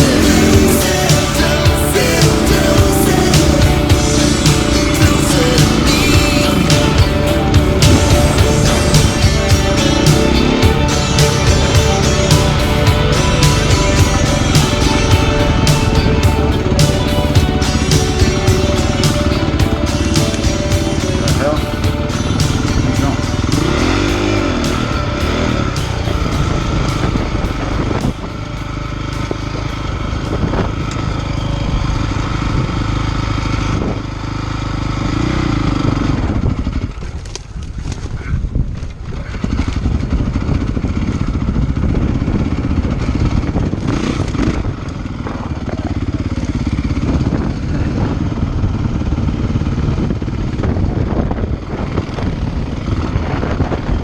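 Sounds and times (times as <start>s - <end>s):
dirt bike engine revving: 0.0s - 37.1s.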